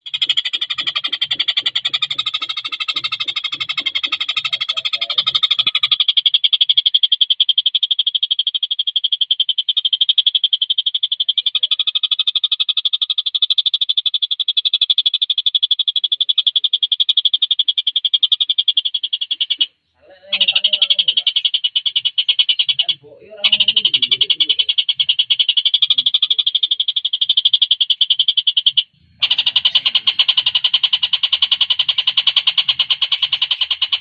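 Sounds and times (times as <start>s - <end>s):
low rhythmic pulsing: 0.0s - 6.0s.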